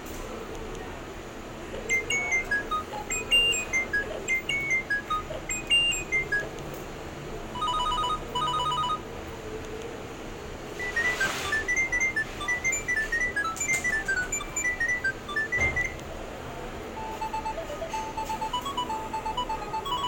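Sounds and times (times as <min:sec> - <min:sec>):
mobile phone ringtone beeps: 0:01.9 - 0:06.5, 0:07.6 - 0:09.0, 0:10.8 - 0:16.0, 0:17.0 - 0:20.0.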